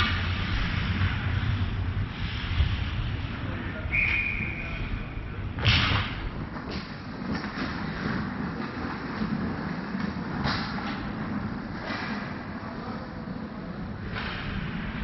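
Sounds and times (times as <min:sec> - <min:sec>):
rink background noise: 0:00.0 - 0:15.0
skate scrapes on ice: 0:00.2 - 0:03.5
hockey puck scrape and knock: 0:05.6 - 0:12.4, 0:14.0 - 0:15.0.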